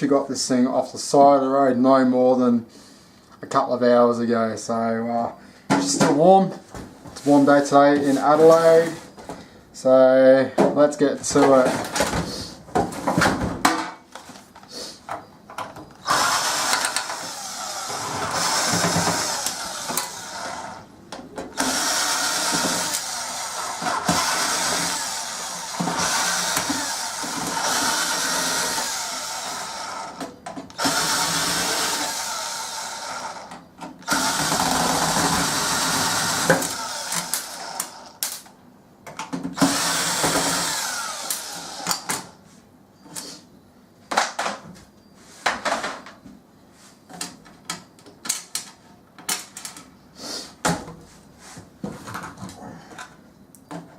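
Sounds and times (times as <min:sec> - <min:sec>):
power drill running: 0:16.0 - 0:20.9, 0:21.5 - 0:30.2, 0:30.8 - 0:38.2, 0:39.6 - 0:42.1.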